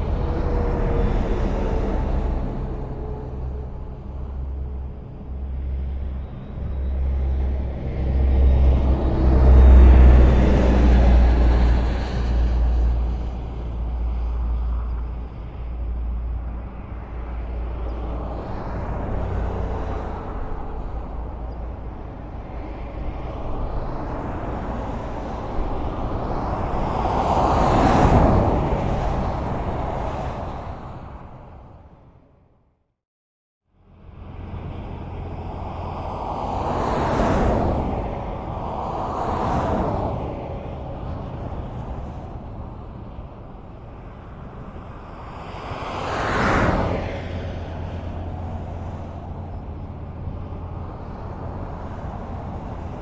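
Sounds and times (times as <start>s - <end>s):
vehicle passing loudly: 0.0s - 15.2s
traffic rumble and tyre hiss: 0.0s - 32.6s, 33.7s - 53.0s.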